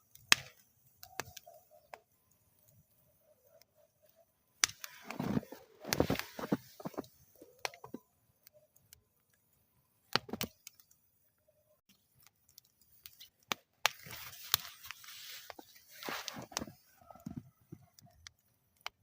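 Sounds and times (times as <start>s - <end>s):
wood fire crackling and popping: 0.0s - 11.1s, 11.9s - 19.0s.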